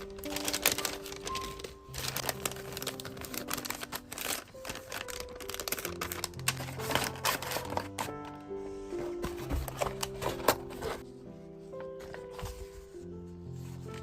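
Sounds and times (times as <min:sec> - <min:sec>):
packaging crinkling and rustling: 0:00.0 - 0:11.1
soft background music: 0:00.0 - 0:14.0.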